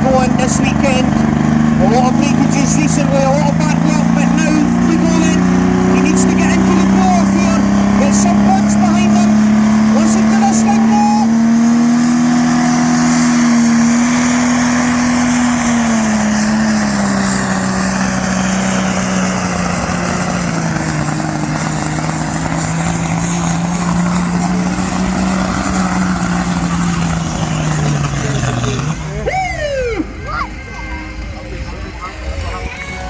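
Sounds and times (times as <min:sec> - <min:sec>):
tractor engine running flat out: 0:00.0 - 0:33.0.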